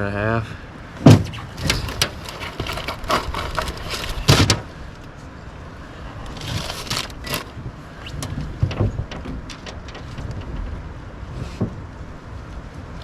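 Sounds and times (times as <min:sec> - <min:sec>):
knocks and clatter of gear: 0:01.0 - 0:05.1, 0:06.3 - 0:11.9.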